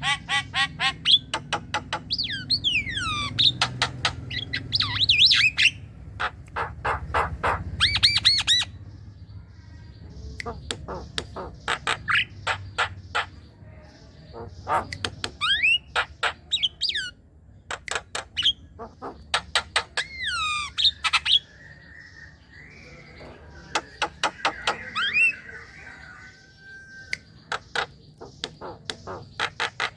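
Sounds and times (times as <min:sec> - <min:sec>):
myna singing clicks and whistles: 0:14.3 - 0:29.9.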